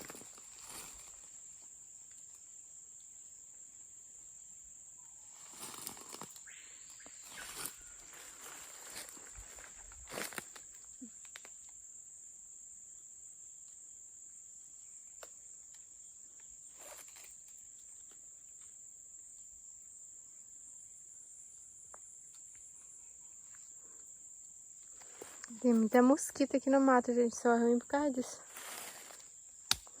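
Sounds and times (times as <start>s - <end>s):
insects droning: 0.0s - 30.0s
faint clicks and rustles: 5.4s - 6.4s.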